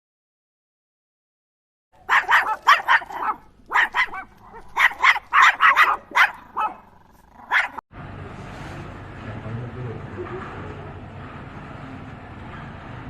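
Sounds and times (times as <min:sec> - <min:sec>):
dog barking: 0:02.0 - 0:07.8.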